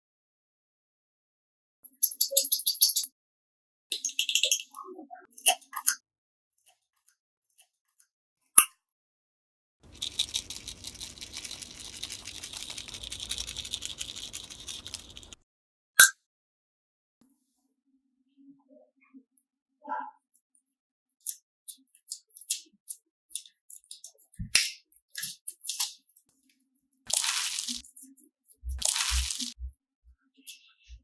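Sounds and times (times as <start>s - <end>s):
slime wet crackling: 9.9s - 15.4s, 27.1s - 28.1s, 28.8s - 29.6s.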